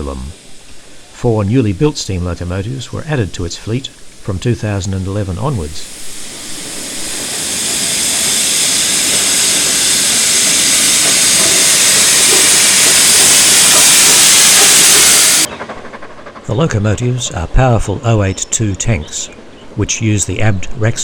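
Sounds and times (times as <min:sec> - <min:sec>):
steam locomotive hissing steam: 0:00.0 - 0:17.9.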